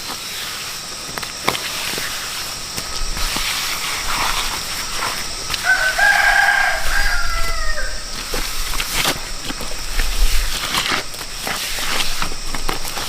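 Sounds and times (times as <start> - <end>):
background hiss: 0.0 - 13.0
rooster crowing: 5.4 - 8.6.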